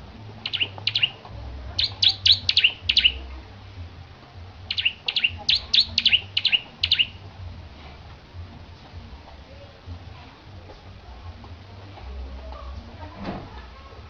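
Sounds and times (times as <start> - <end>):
bird high chip notes: 0.4 - 1.2, 1.8 - 3.3, 4.7 - 7.2.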